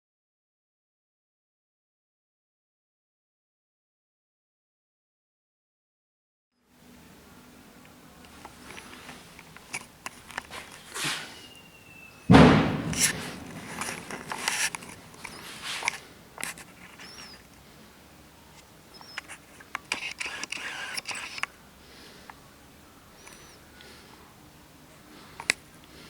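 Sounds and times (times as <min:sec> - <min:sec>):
rustling and scraping: 0:08.3 - 0:11.6, 0:12.3 - 0:17.5, 0:18.6 - 0:21.5
loud knock: 0:12.3 - 0:14.4.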